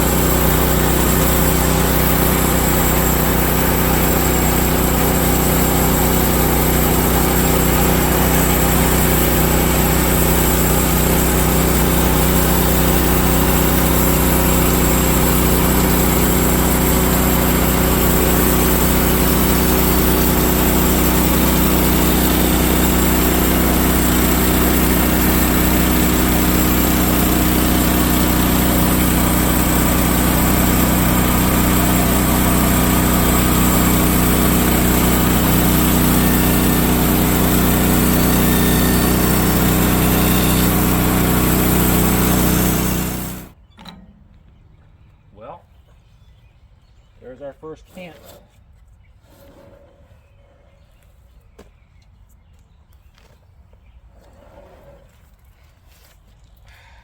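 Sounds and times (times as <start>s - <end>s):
sawmill gas engine running: 0.0s - 43.6s.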